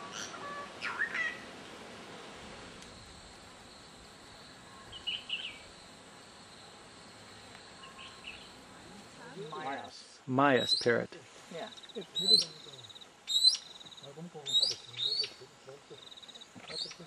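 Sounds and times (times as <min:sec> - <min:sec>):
faint high insect drone: 0:00.0 - 0:17.0
birds whistled chirps: 0:00.1 - 0:01.4, 0:04.8 - 0:05.6, 0:10.6 - 0:10.9, 0:11.7 - 0:15.4.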